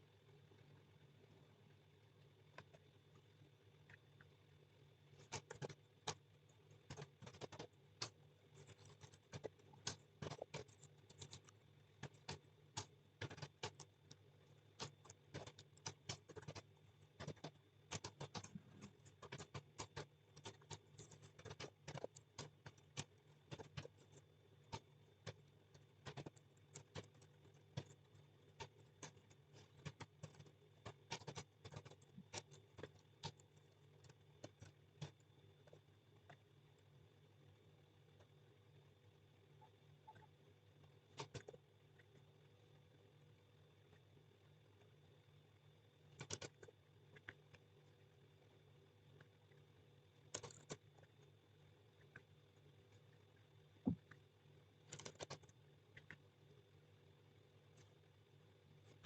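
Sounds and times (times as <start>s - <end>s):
faint low hum: 0.0s - 59.0s
typing on a keyboard: 6.8s - 14.2s, 14.8s - 35.8s, 46.1s - 47.4s, 50.3s - 51.0s, 54.9s - 56.2s.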